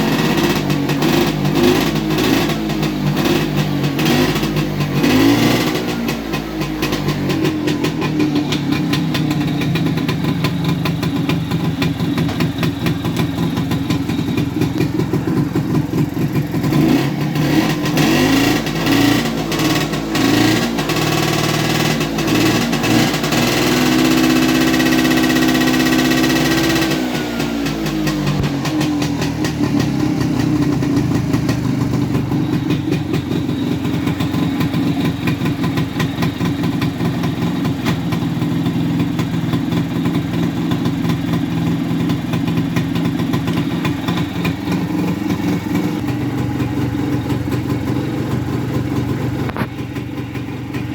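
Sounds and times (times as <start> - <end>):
scooter engine idling and revving: 0.0 - 50.9.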